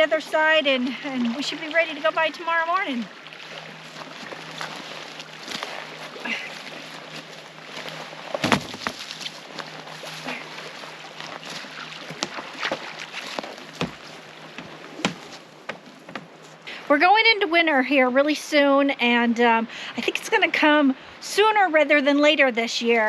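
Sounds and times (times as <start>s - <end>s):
wind and water rushing: 0.0s - 23.0s
heavy thuds: 7.8s - 9.3s, 12.1s - 16.6s
wood knocking on wood: 8.4s - 9.0s, 13.4s - 16.4s.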